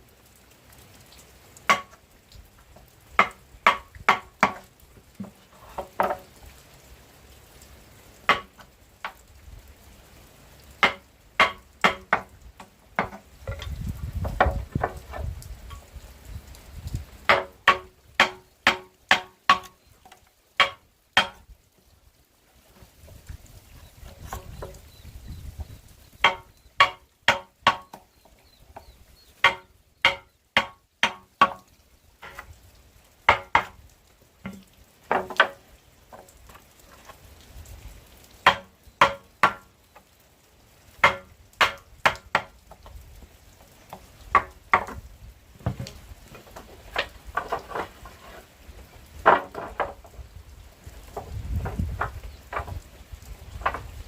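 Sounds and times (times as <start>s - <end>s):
hand tool striking wood: 1.7s - 2.0s, 3.2s - 6.2s, 8.3s - 9.2s, 10.8s - 15.3s, 17.3s - 19.8s, 20.6s - 21.5s, 26.2s - 28.0s, 29.4s - 32.5s, 33.3s - 33.8s, 34.4s - 36.2s, 38.4s - 39.7s, 41.0s - 42.5s, 44.3s - 45.0s.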